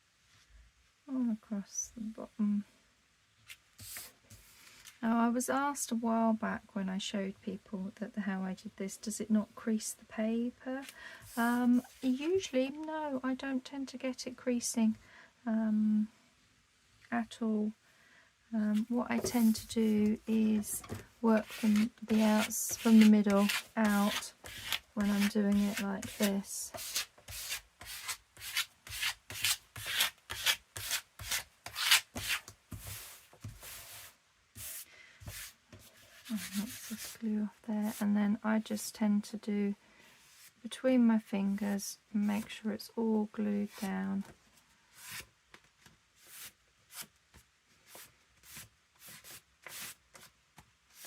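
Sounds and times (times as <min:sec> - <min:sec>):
hands rubbing paper: 0:21.3 - 0:37.2.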